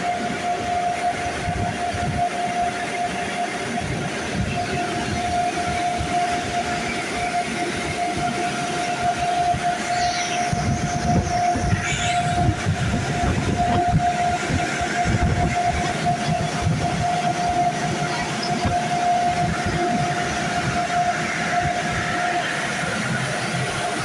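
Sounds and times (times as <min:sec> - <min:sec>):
car wash dryer blowers: 0:00.0 - 0:24.0.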